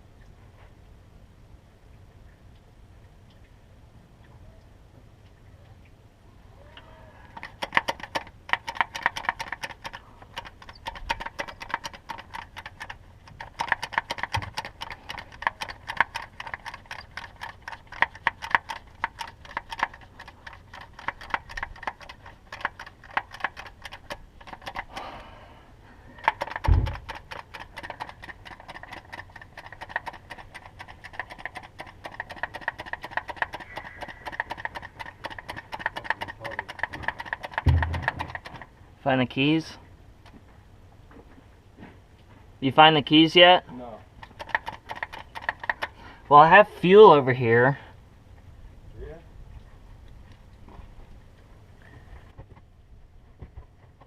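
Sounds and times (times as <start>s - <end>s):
rapid metallic clicking: 7.3s - 25.1s, 26.2s - 38.7s, 44.2s - 46.0s
low thump: 26.7s - 27.0s, 37.7s - 38.2s.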